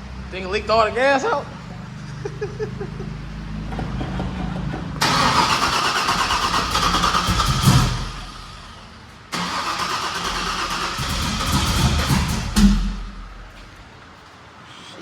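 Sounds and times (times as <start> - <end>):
engine starting and revving: 4.9 - 13.3.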